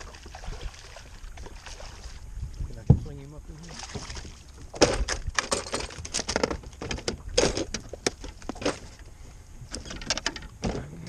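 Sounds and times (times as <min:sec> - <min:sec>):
fish flopping in a boat: 0:03.6 - 0:11.0.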